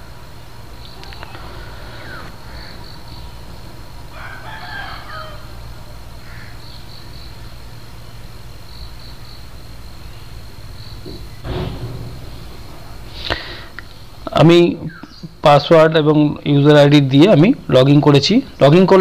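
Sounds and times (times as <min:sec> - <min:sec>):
steady low hum: 0:00.0 - 0:19.0
bird calling: 0:00.8 - 0:03.6, 0:04.8 - 0:07.6, 0:14.8 - 0:15.4.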